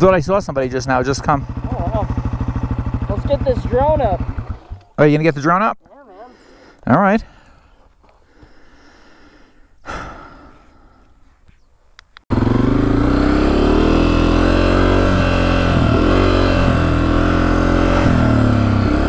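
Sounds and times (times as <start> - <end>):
dirt bike engine revving: 0.6 - 5.0, 12.3 - 19.0.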